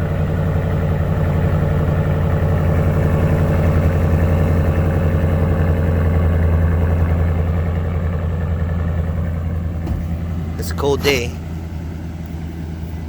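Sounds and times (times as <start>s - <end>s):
engine idling deep exhaust rumble: 0.0s - 13.0s.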